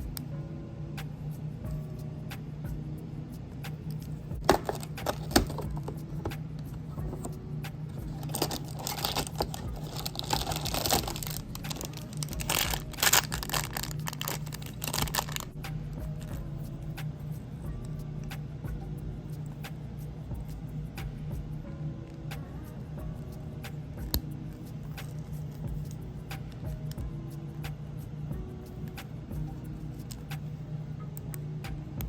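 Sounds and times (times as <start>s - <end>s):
plastic bag crinkling and tearing: 4.5s - 5.6s, 8.1s - 15.5s.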